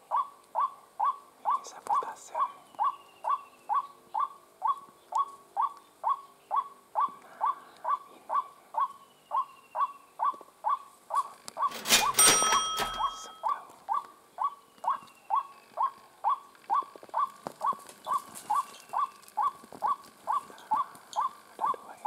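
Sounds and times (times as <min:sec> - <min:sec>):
loud rustling: 0:11.6 - 0:13.4.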